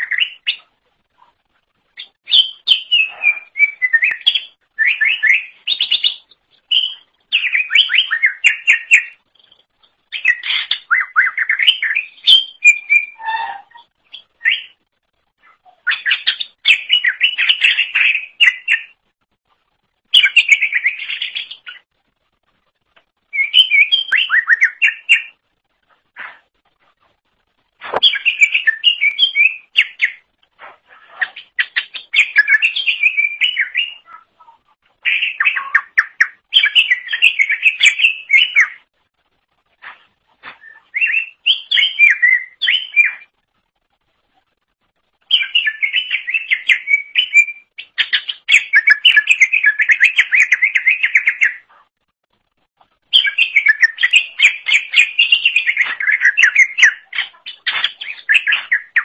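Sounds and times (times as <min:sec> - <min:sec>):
bird singing rapid varied notes: 0:01.9 - 0:14.8, 0:27.9 - 0:30.4, 0:53.1 - 0:59.0.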